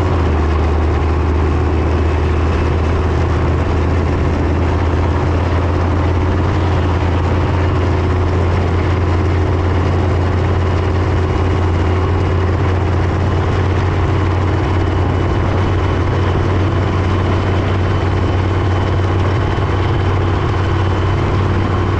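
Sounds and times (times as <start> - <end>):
tank diesel engine droning: 0.0 - 21.9.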